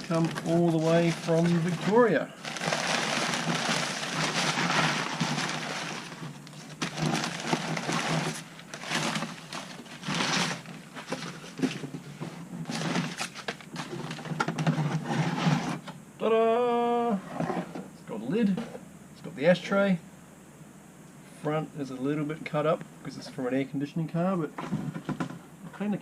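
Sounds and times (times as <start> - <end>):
cardboard tearing and rustling: 0.0 - 15.8.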